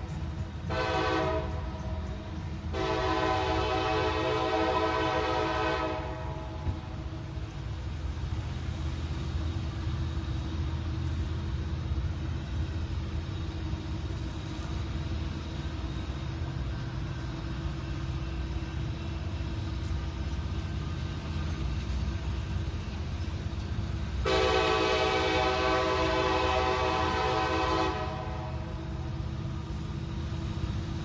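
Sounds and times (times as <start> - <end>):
diesel locomotive engine rumble: 0.0 - 31.0
train horn blasts: 0.6 - 2.0, 2.7 - 6.9, 24.2 - 28.8.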